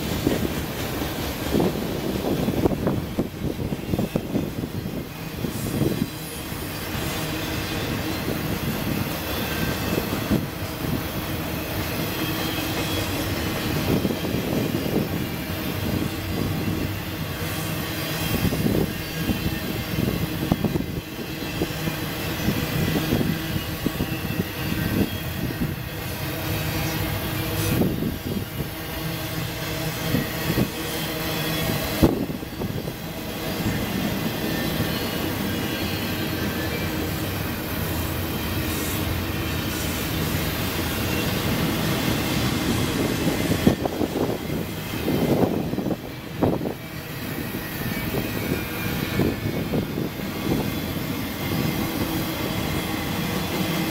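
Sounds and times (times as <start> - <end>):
train wheels rumbling on track: 0.0 - 53.9.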